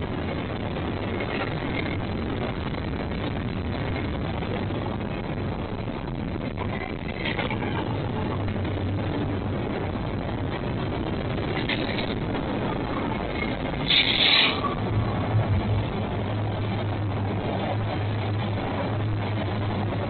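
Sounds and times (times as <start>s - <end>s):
freight train rumbling: 0.0s - 20.0s.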